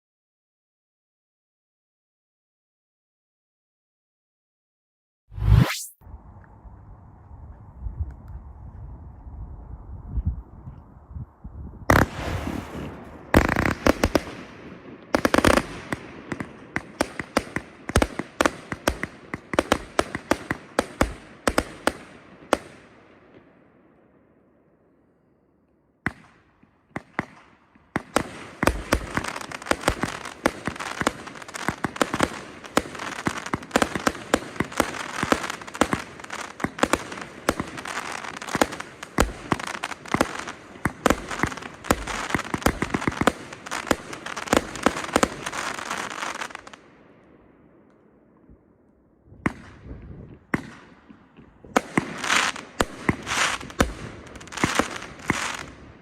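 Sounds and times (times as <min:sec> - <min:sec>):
fireworks shots and bursts: 0:11.9 - 0:23.5, 0:26.1 - 0:47.1, 0:49.4 - 0:56.0.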